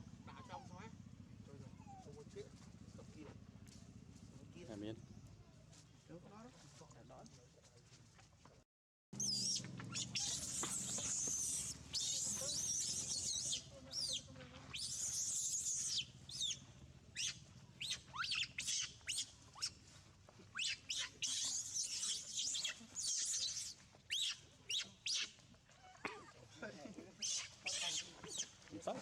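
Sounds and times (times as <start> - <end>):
baby monkey screaming: 9.2 - 16.6, 17.2 - 19.8, 20.5 - 26.3, 27.2 - 28.6.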